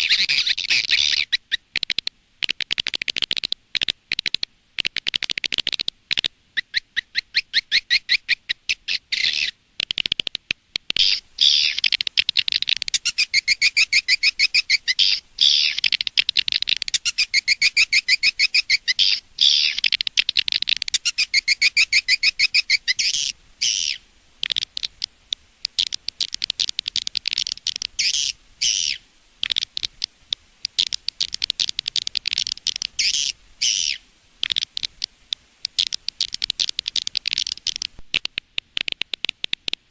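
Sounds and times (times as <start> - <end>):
recorded swiftlet chirps: 11.0 - 38.1.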